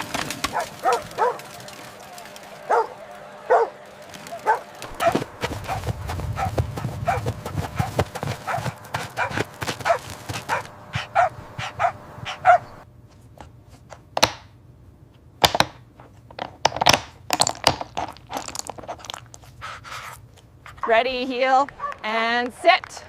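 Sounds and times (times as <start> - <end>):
dog barking: 0.4 - 1.6, 2.6 - 12.8, 21.8 - 22.0.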